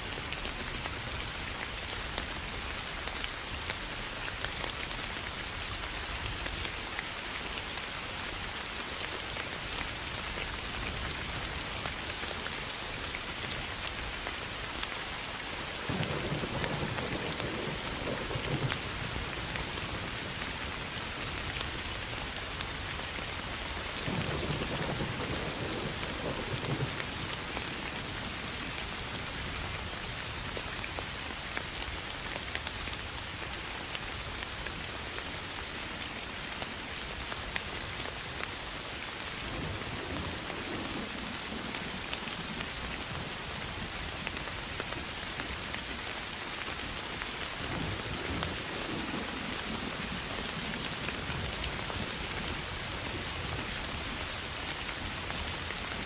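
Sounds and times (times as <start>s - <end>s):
soft rain pattering on grass: 0.0s - 56.0s
low rumbles of thunder: 15.8s - 20.8s, 24.0s - 29.2s.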